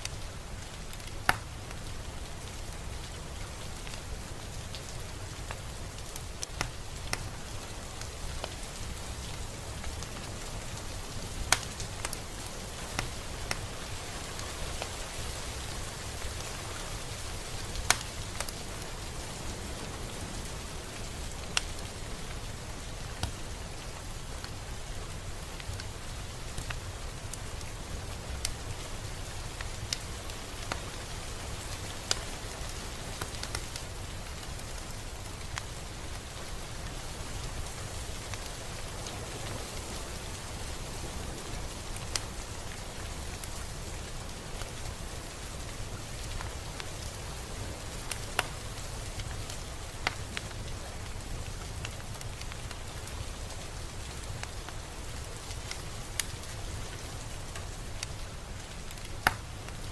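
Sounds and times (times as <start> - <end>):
raindrops ticking close by: 0.0 - 59.9
steady rain: 0.0 - 59.9.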